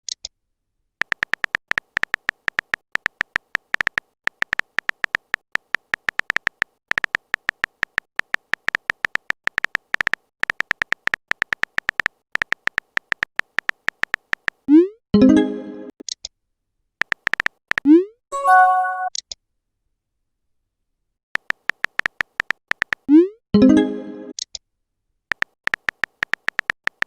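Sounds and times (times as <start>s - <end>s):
high-pitched electronic ticks: 25.3s - 27.0s.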